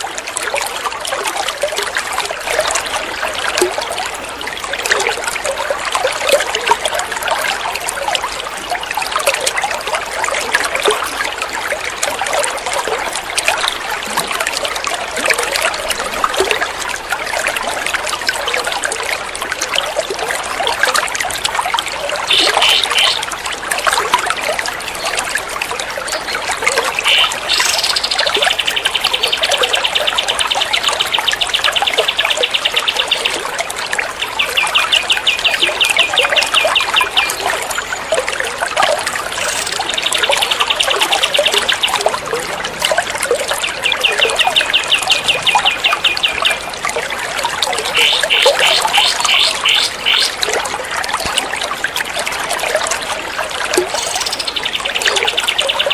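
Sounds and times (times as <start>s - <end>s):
water trickling: 0.0s - 55.9s
songbird rapid trills: 22.3s - 23.3s, 26.8s - 33.4s, 47.9s - 50.4s.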